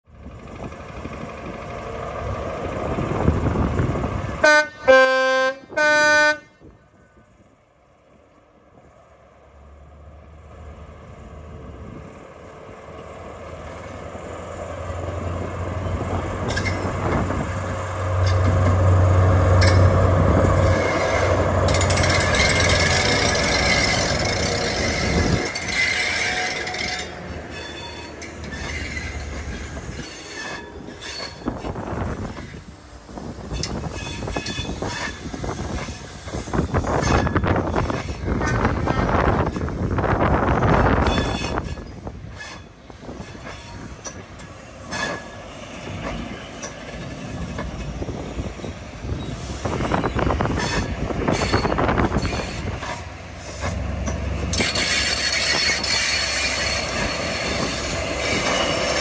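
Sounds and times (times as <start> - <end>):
rail noise: 0.0 - 59.0
diesel engine drone: 0.1 - 5.7
two-tone train horn blasts: 4.4 - 6.8.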